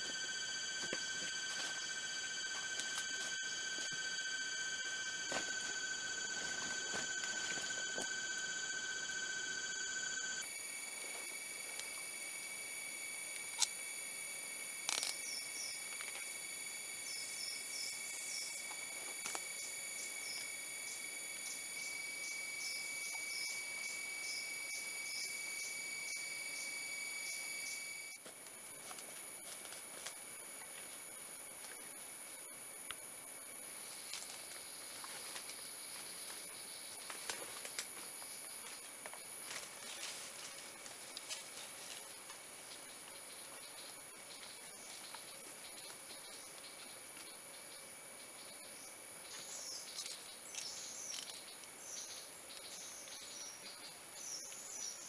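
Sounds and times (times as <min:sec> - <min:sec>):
low steady tone: 0:00.0 - 0:10.8
insects droning: 0:00.0 - 0:55.0.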